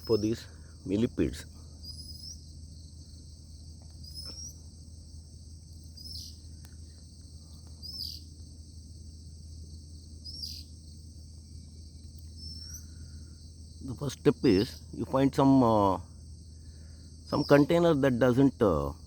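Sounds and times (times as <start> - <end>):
bird rising chirps: 0.0 - 4.8, 5.6 - 8.4, 9.7 - 13.7
cricket chorus drone: 0.0 - 19.0.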